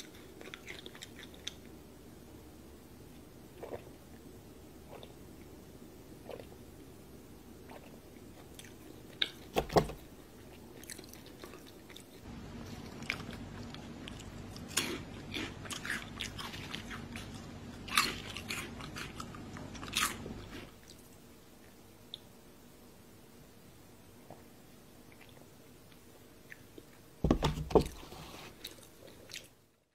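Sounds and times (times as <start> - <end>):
chewing crunchy snacks: 0.0 - 1.8, 10.4 - 21.1
faint low hum: 0.0 - 29.9.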